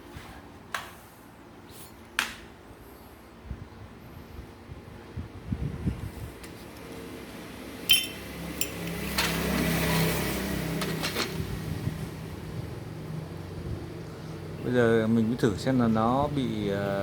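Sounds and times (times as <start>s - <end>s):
metal parts clinking: 7.9s - 9.4s.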